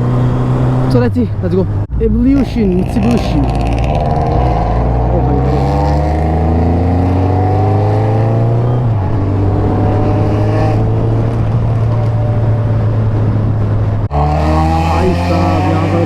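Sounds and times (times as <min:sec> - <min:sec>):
motorcycle engine accelerating: 0:01.8 - 0:16.0.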